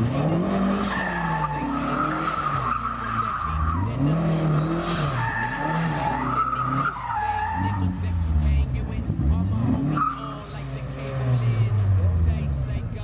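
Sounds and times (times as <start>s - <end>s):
tyres squealing on pavement: 0.0s - 12.6s
truck engine revving: 0.0s - 13.0s.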